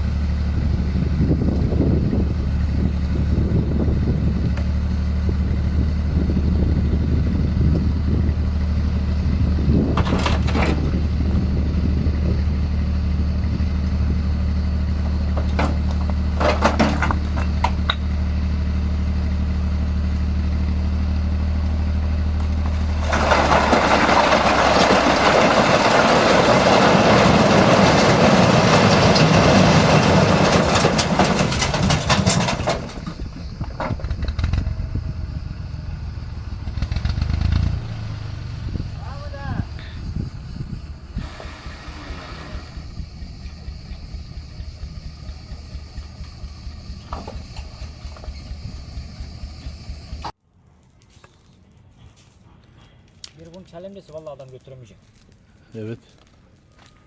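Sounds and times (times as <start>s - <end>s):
engine idling with low hum: 0.0s - 26.2s, 27.1s - 37.4s, 38.2s - 50.4s
knocks: 15.1s - 18.0s.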